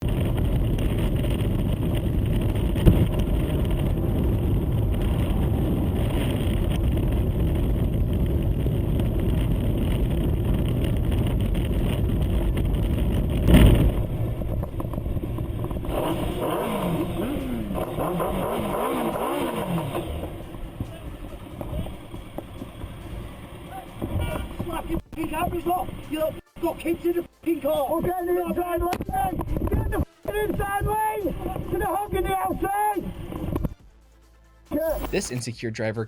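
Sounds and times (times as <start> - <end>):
traffic noise: 0.0 - 35.7
wavering rising and falling tone: 12.7 - 30.1
short sharp sound: 33.0 - 35.5.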